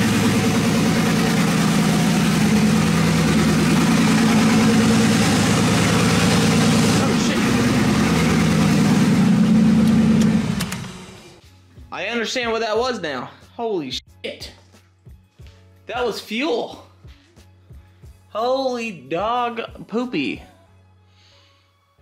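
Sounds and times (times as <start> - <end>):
engine idling: 0.0 - 11.4.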